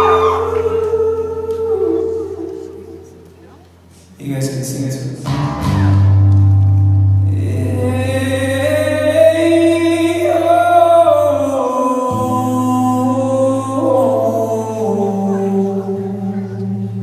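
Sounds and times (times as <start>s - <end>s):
man singing: 0.0s - 3.2s, 7.2s - 17.0s
crowd singing along: 0.0s - 3.3s.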